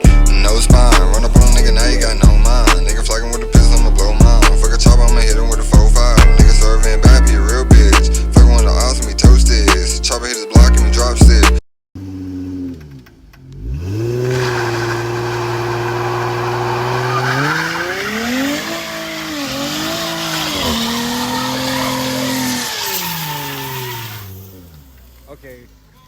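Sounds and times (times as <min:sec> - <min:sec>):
car engine revving hard: 0:12.0 - 0:25.0
tires squealing: 0:12.0 - 0:26.0.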